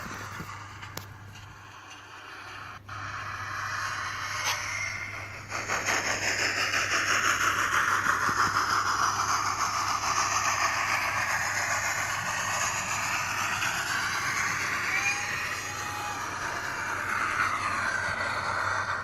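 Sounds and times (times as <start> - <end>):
model locomotive chuffs: 0.0 - 19.0
steam hiss from loudspeaker: 1.5 - 19.0.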